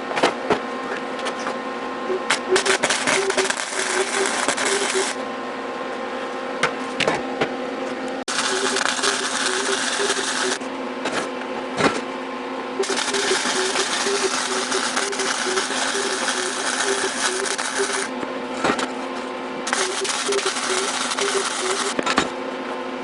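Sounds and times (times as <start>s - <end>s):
welding arc crackling hiss: 2.6s - 5.2s, 8.3s - 10.6s, 12.8s - 18.1s, 19.7s - 22.0s.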